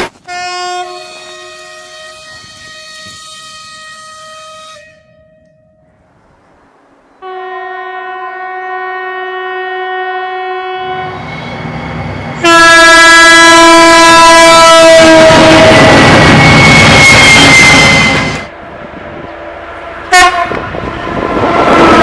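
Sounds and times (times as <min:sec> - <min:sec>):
locomotive air horn: 0:00.1 - 0:05.6, 0:07.2 - 0:11.3, 0:12.4 - 0:18.5, 0:20.1 - 0:20.8
train passing rumble: 0:00.1 - 0:22.0.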